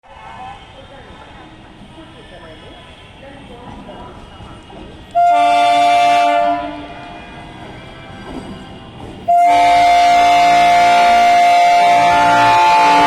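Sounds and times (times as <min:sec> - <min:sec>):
train horn blasts: 0:05.2 - 0:07.3, 0:09.3 - 0:13.0.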